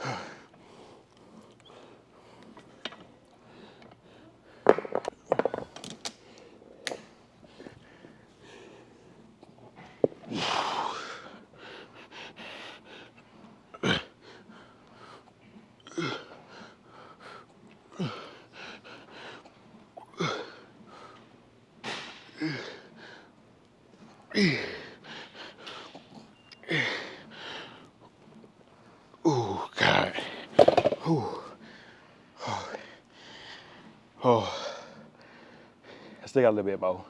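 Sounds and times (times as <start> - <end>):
man grunting: 29.3 - 31.4.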